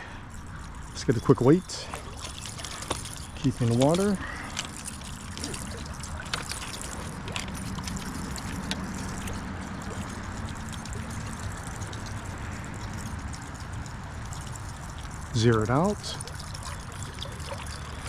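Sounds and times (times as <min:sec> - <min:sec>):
flowing creek water: 0:00.0 - 0:18.0.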